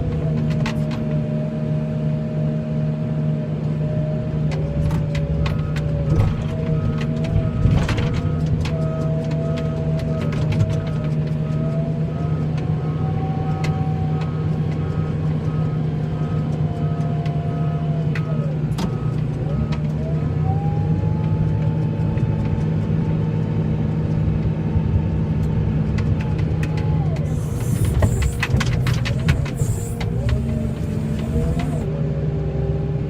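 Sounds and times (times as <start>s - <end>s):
vehicle engine running under load: 0.0s - 33.0s.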